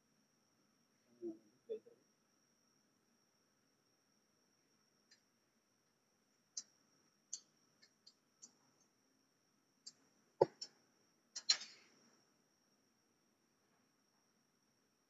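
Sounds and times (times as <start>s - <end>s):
faint high whine: 0.0s - 15.0s
light clicks and taps: 6.5s - 8.9s.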